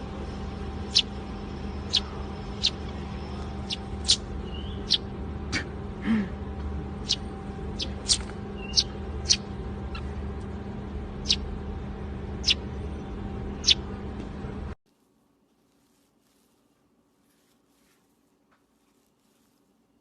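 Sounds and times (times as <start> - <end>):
steady background hum: 0.0 - 20.0
parrot squeaking: 1.9 - 2.8, 3.6 - 5.1, 7.0 - 7.2, 7.8 - 10.2, 11.2 - 11.4, 12.4 - 12.6, 13.6 - 13.8.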